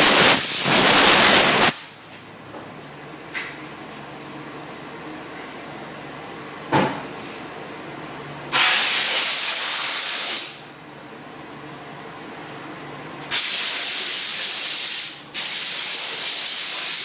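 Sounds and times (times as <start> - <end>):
steam hissing from wand: 0.0 - 1.8.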